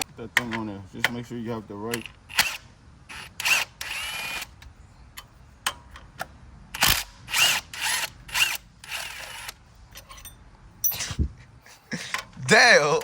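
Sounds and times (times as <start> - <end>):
power tool motor whining: 2.3 - 4.5, 6.8 - 9.6.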